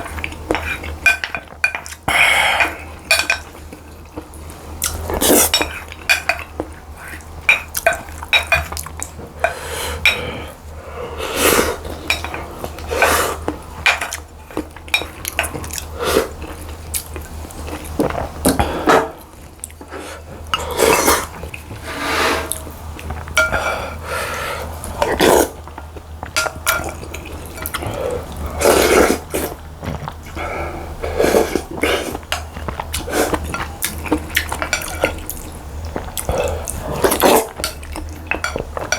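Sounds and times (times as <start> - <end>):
utensils clinking against bowls: 0.0 - 4.2, 4.8 - 10.4, 11.8 - 18.2, 22.4 - 23.9, 25.0 - 30.1, 31.8 - 38.9
steady low hum: 0.0 - 38.9
wet eating noises: 0.0 - 38.9.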